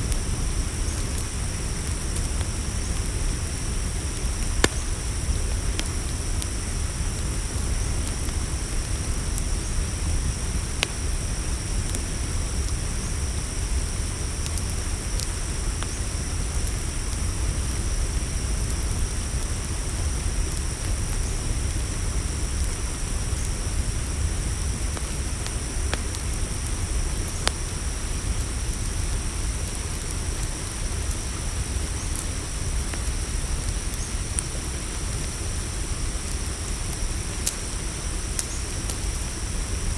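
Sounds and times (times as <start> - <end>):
campfire burning: 0.0 - 39.9
crickets chirring: 0.0 - 39.9
sharp fire crackles and pops: 0.0 - 39.9.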